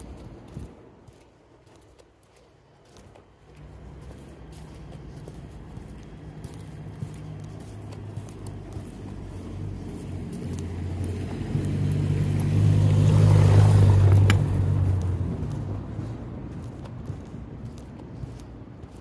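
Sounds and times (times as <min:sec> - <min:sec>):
car driving past: 0:03.6 - 0:16.6.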